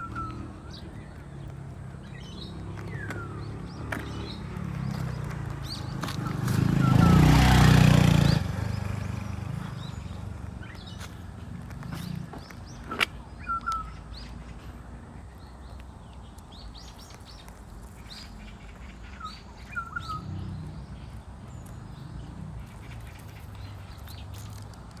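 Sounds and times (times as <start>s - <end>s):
faint high bird chirps: 0.0s - 1.0s, 12.8s - 14.4s.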